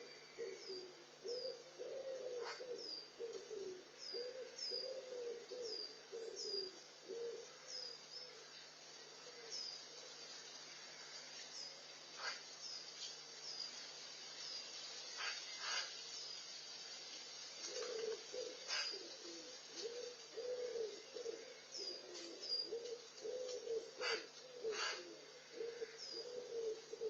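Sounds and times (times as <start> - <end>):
songbird high chirp: 0.0 - 1.6
wood pigeon cooing: 0.0 - 9.8, 17.6 - 27.0.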